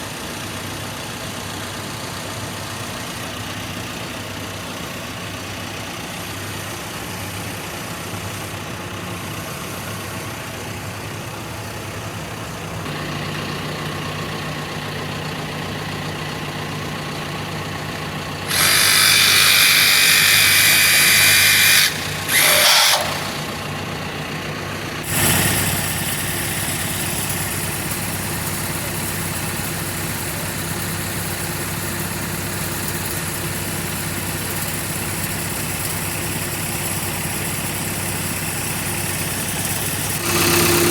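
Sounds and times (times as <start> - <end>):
engine idling: 0.0 - 40.9
power tool bursts: 18.4 - 24.0, 25.0 - 40.9.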